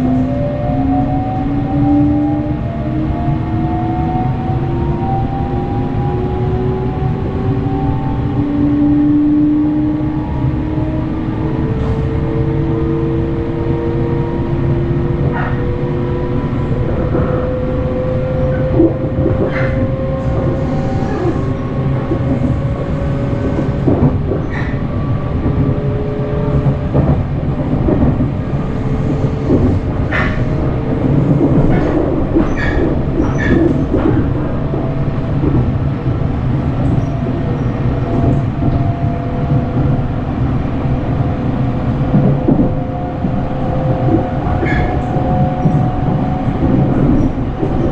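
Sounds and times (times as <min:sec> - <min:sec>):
train rumble: 0:00.0 - 0:47.9
train motor whine: 0:19.3 - 0:24.8.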